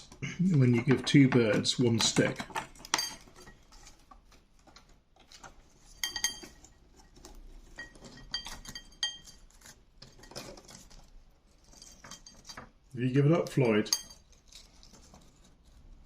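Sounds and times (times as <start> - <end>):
birds tapping and clinking: 0.1 - 3.9, 5.9 - 6.8, 7.8 - 11.0.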